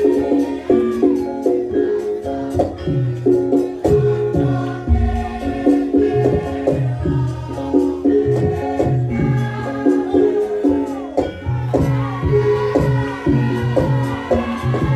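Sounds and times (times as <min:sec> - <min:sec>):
drum strokes: 0:03.7 - 0:09.6
struck melodic gong notes: 0:04.8 - 0:07.0.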